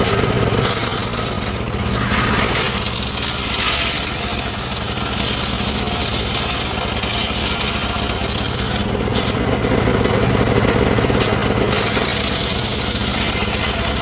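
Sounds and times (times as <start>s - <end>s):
small engine running: 0.0s - 14.0s
high hiss: 1.6s - 3.6s.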